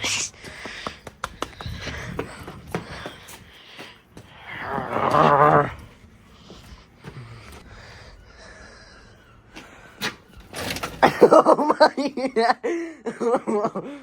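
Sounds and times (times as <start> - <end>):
person laughing breathily: 11.0 - 14.0.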